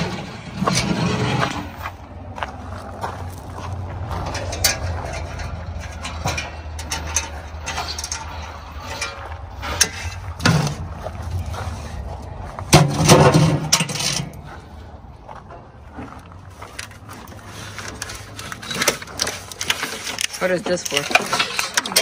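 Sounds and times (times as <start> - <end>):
scraping with low tone: 0.0 - 20.4
clicks and rattles on metal: 4.0 - 10.9, 12.7 - 14.5, 16.7 - 22.0.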